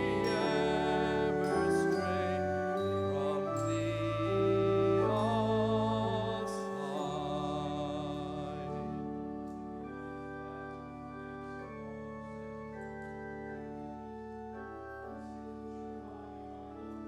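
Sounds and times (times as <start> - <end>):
voices singing: 0.0 - 9.1
organ playing a slow hymn: 0.0 - 17.0.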